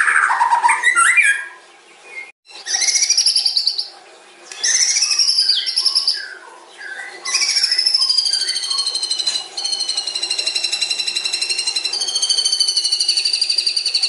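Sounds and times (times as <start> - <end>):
bird singing: 0.0 - 14.0.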